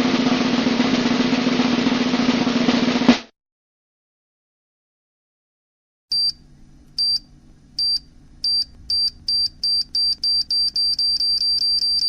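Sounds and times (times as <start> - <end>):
faint low hum: 6.1 - 12.0
short high beeps: 7.8 - 12.0.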